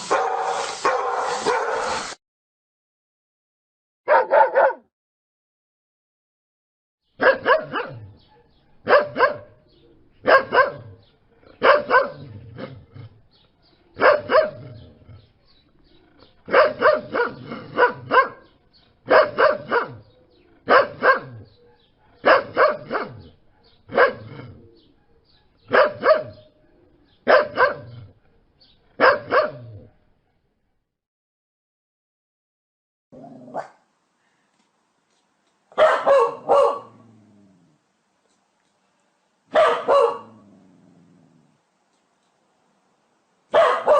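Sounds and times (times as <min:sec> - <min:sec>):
dog barking: 0:00.0 - 0:02.2, 0:04.1 - 0:04.9, 0:07.2 - 0:09.6, 0:10.2 - 0:11.0, 0:11.6 - 0:12.3, 0:14.0 - 0:14.6, 0:16.5 - 0:18.5, 0:19.1 - 0:20.0, 0:20.7 - 0:24.3, 0:25.4 - 0:26.5, 0:27.2 - 0:28.0, 0:29.0 - 0:29.7, 0:33.5 - 0:33.8, 0:35.7 - 0:37.0, 0:39.5 - 0:40.4, 0:43.5 - 0:43.9.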